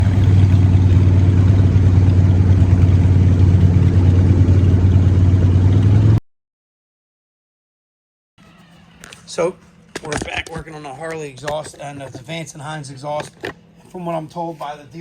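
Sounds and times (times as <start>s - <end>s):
loud motorcycle engine running: 0.0s - 6.2s.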